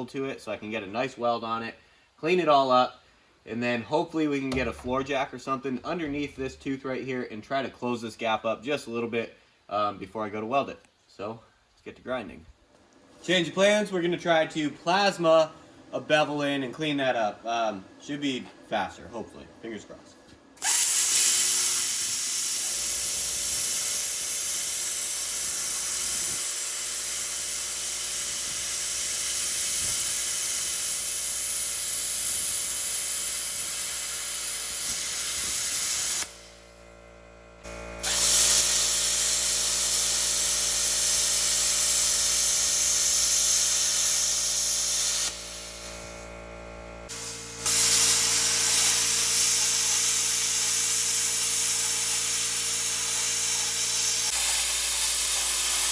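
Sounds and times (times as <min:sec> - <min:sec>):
plasma cutter hissing: 0:20.6 - 0:36.7, 0:38.0 - 0:46.3, 0:47.1 - 0:55.9.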